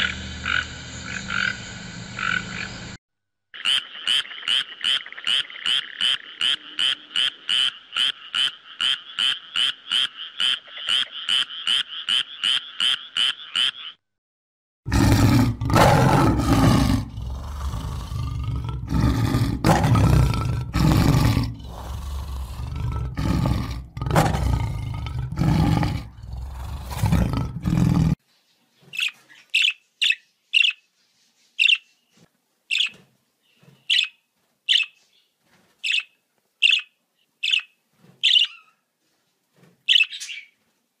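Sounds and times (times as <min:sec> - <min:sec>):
frog croaking: 0:00.0 - 0:01.6, 0:02.2 - 0:02.7, 0:03.6 - 0:14.0
lion roaring and growling: 0:14.9 - 0:28.2
budgerigar chirps: 0:35.9 - 0:38.8.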